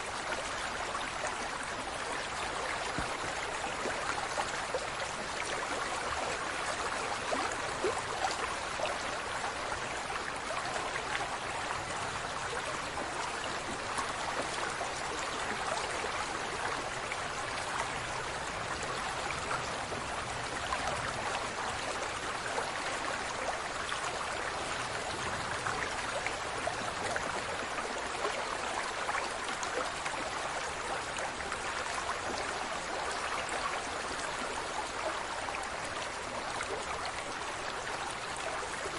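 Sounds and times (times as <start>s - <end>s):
running water: 0.0s - 38.9s.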